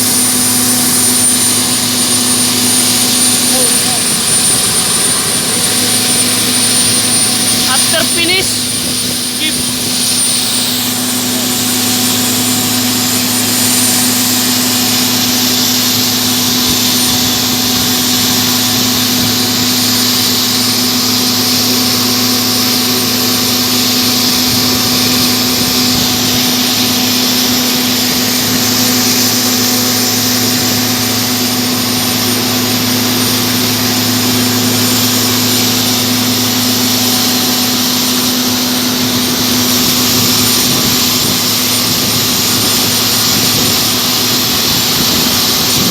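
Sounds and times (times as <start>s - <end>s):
jet engines whining: 0.0s - 45.9s
steady low hum: 0.0s - 45.9s.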